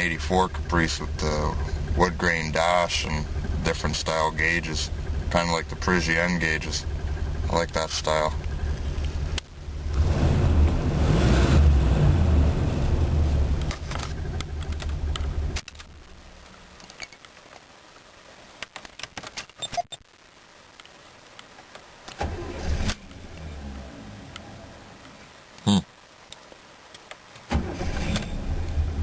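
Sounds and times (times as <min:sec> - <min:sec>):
car engine low rumble: 0:00.0 - 0:16.8, 0:22.2 - 0:25.0, 0:27.6 - 0:29.0.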